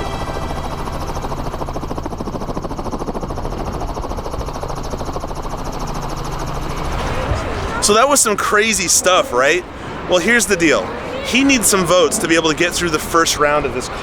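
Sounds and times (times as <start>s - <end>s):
helicopter rotor chopping: 0.0s - 14.0s.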